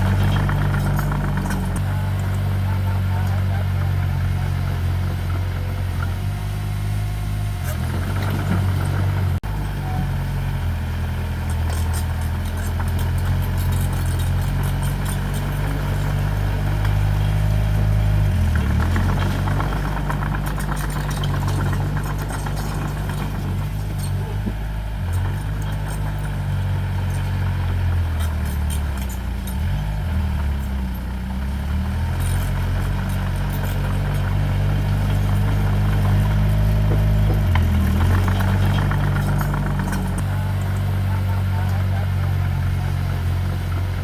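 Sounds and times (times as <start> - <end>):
metallic rattling and clanking: 0.0 - 3.5, 11.4 - 41.9
heavy diesel engine running: 0.0 - 44.0.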